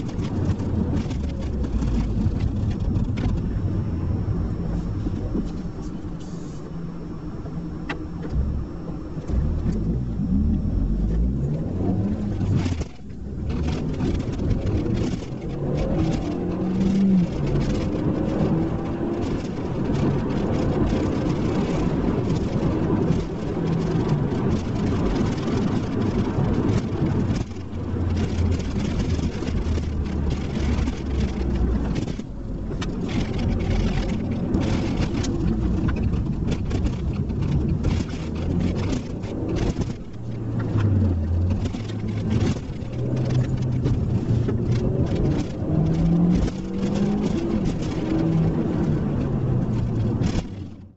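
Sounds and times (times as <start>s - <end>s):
car engine accelerating hard: 0.0s - 50.9s
road and wind noise: 0.0s - 50.9s.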